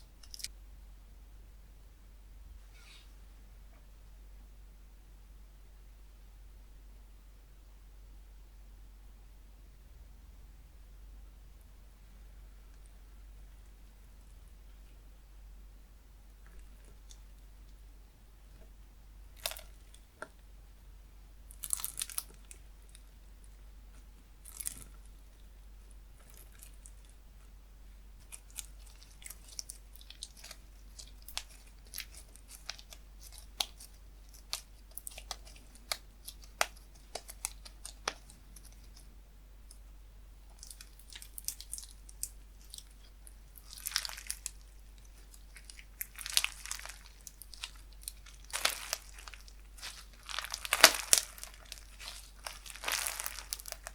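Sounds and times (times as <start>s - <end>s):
slime squishing and popping: 28.2s - 39.0s, 40.5s - 53.9s.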